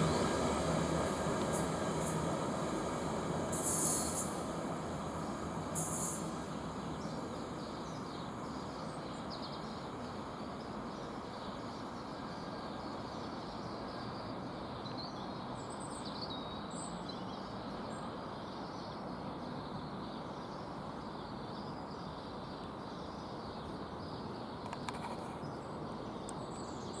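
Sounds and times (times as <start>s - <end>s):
outdoor background hum: 16.8s - 27.0s
faint click: 24.6s - 25.4s.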